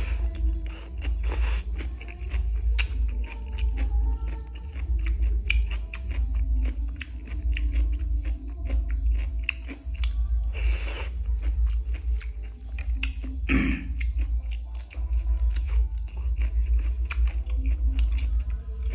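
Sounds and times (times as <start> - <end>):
chewing and crunching food: 0.0 - 18.9
faint music: 0.0 - 18.9
wet mouth clicks: 0.3 - 3.7.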